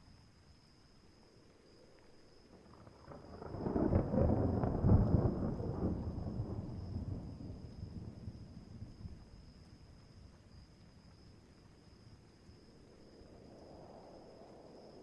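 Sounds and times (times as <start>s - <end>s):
thunder rumbling: 2.6s - 9.6s.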